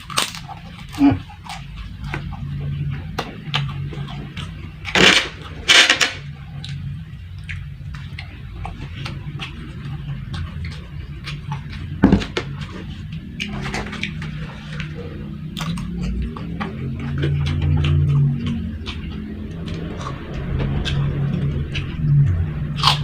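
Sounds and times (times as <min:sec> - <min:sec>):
chewing with small clicks: 0:00.0 - 0:04.9, 0:06.6 - 0:20.2.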